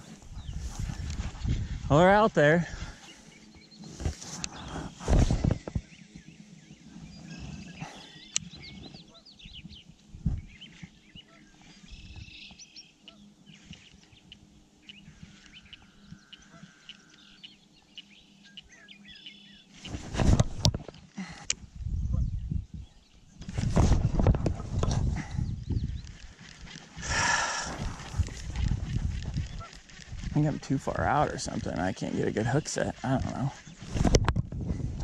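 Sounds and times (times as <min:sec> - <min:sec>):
small birds chirping: 0:00.0 - 0:20.1, 0:20.9 - 0:34.2
held steady bird note: 0:05.8 - 0:19.8.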